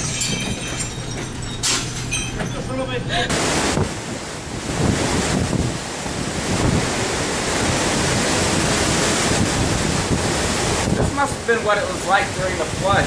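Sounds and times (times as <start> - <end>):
rough sea waves: 0.0 - 13.0
storm wind: 0.0 - 13.0
wind buffeting microphone: 2.6 - 13.0.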